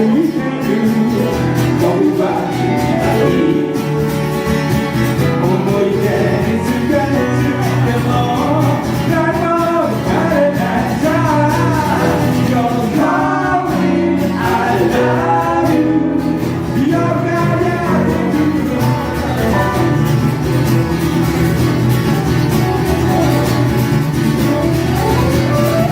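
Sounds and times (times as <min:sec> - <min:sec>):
person singing: 0:00.0 - 0:04.2, 0:05.2 - 0:20.4
guitar accompaniment: 0:00.0 - 0:25.9.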